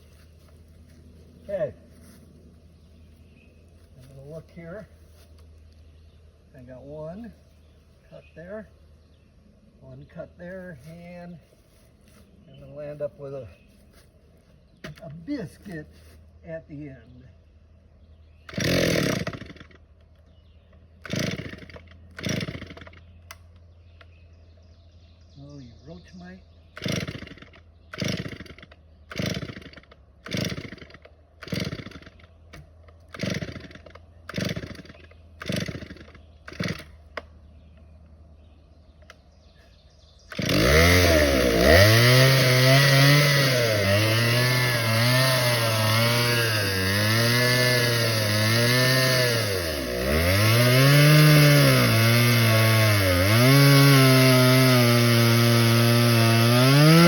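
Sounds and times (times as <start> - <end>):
chainsaw engine revving: 18.4 - 19.9, 21.0 - 23.4, 26.7 - 37.3, 40.2 - 57.0
chainsaw starter cord yanks: 18.4 - 20.1, 21.0 - 24.1, 26.8 - 37.3, 40.3 - 57.0.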